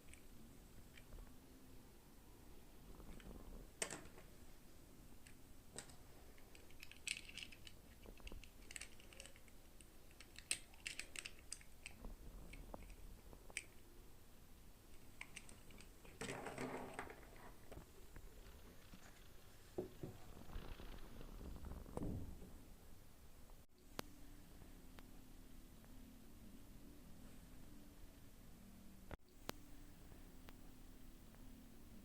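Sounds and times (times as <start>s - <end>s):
plastic toy pieces clicking: 5.8s - 12.0s.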